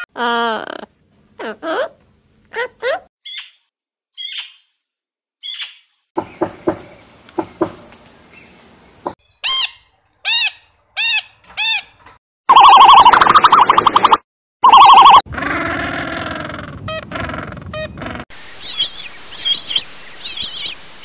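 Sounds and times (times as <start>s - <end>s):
bird calls: 5.4s - 11.9s.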